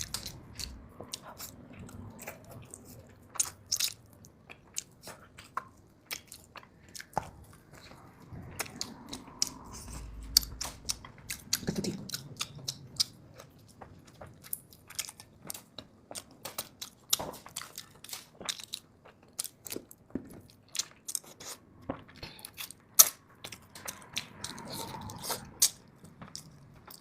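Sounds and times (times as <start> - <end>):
chewing and biting food: 0.0 - 27.0.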